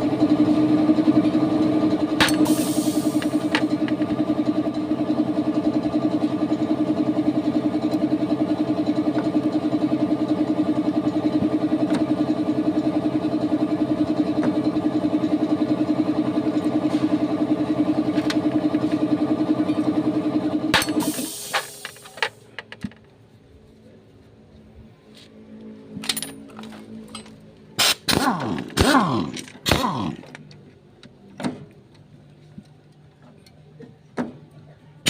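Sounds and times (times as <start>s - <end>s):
motorcycle engine idling: 0.0s - 22.8s.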